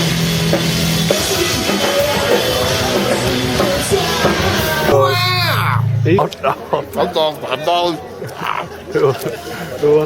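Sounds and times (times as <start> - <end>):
loud rock music: 0.0 - 6.2
guitar: 0.0 - 7.0
drum kit hitting: 0.4 - 6.2
held bass note: 4.5 - 6.3.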